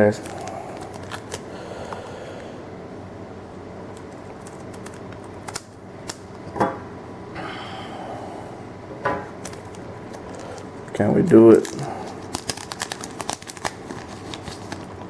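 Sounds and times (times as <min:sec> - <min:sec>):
foil pack crinkling and clicks: 0:00.0 - 0:01.5, 0:03.9 - 0:06.4, 0:09.4 - 0:15.0
steady low hum: 0:00.0 - 0:15.0.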